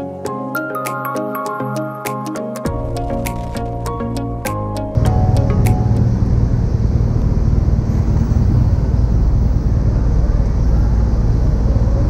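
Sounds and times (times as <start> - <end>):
motorcycle engine idling: 5.0 - 11.4.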